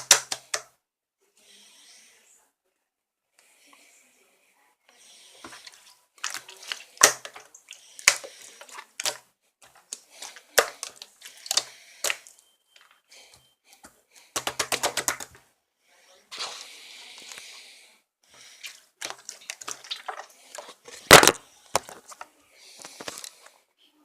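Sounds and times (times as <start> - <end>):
slime squeezed with wet pops: 6.2 - 9.2, 18.7 - 20.3.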